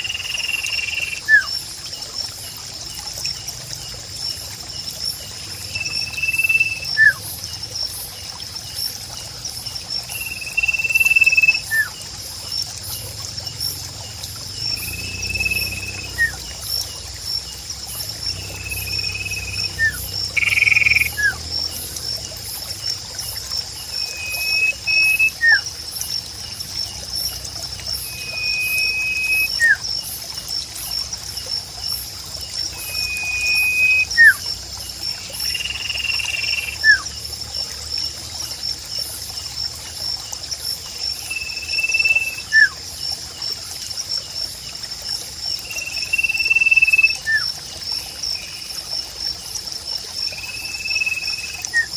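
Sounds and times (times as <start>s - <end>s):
insect trill: 0.0s - 51.9s
trickling water: 0.0s - 51.9s
bird whistling call: 24.1s - 25.6s, 28.1s - 29.8s, 32.9s - 34.4s.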